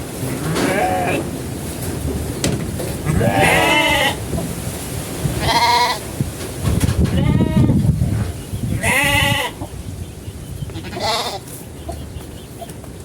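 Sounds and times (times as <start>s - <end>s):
low rumble of wind: 0.0s - 13.0s
goats bleating: 0.4s - 1.3s, 3.0s - 4.2s, 5.4s - 6.1s, 7.1s - 7.8s, 8.8s - 9.6s, 10.7s - 11.5s.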